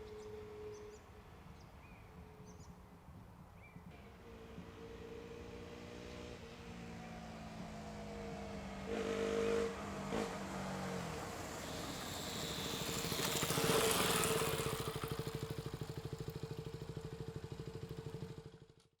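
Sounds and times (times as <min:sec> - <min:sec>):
motorcycle engine running: 0:07.6 - 0:18.9.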